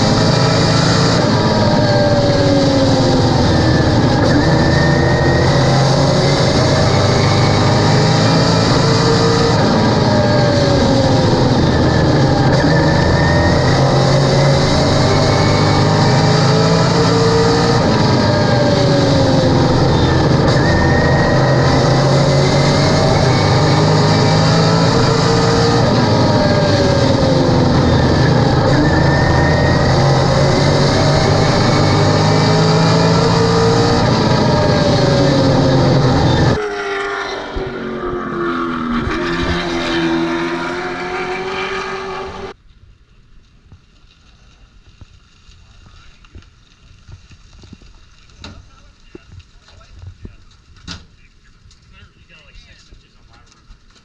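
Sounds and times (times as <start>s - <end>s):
race car engine accelerating: 0.0s - 42.6s.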